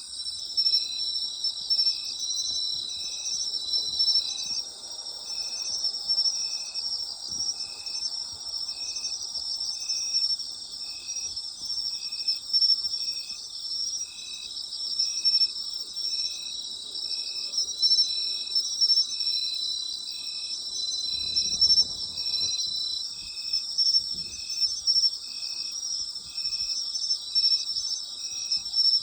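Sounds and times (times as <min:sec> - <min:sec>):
insect chirping: 0:00.0 - 0:29.0
insects trilling: 0:00.1 - 0:29.0.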